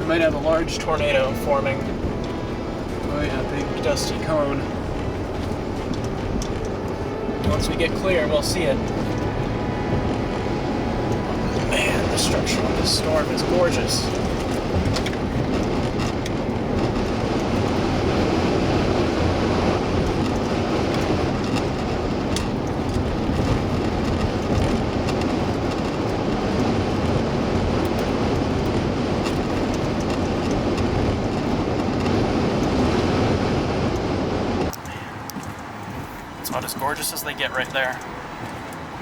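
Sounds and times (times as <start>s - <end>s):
car road and tyre noise: 0.0s - 39.0s
faint clicks: 33.9s - 38.8s.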